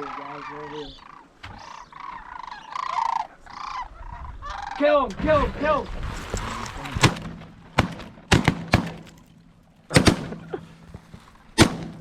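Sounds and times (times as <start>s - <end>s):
shotgun shots: 6.8s - 9.3s, 9.9s - 10.4s, 11.6s - 12.0s.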